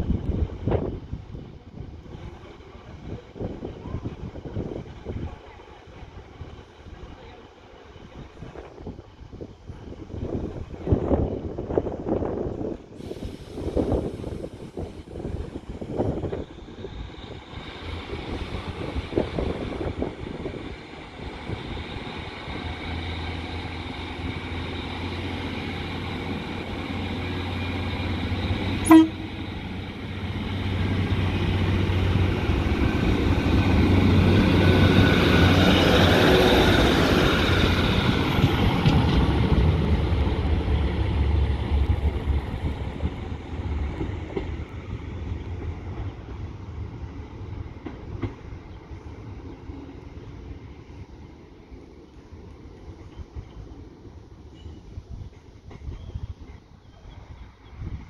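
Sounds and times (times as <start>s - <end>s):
train engine and wheels passing: 0.0s - 58.0s
train horn toot: 28.8s - 29.5s.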